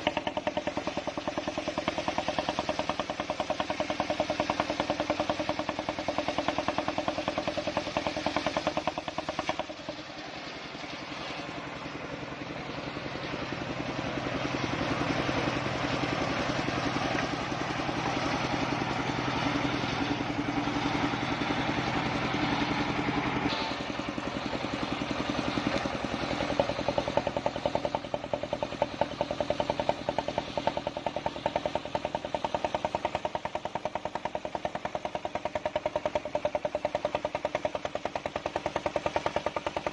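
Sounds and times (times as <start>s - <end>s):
saw blade cutting log: 0.0s - 10.0s, 16.3s - 39.9s
engine pulsing: 0.0s - 39.9s.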